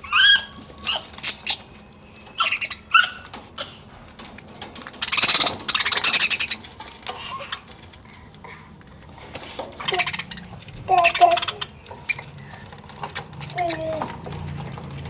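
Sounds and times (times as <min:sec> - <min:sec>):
budgerigars chirping: 0:00.0 - 0:03.8, 0:04.9 - 0:06.8, 0:09.8 - 0:13.3
budgerigars squawking: 0:00.0 - 0:03.9, 0:05.0 - 0:06.8, 0:09.8 - 0:13.3.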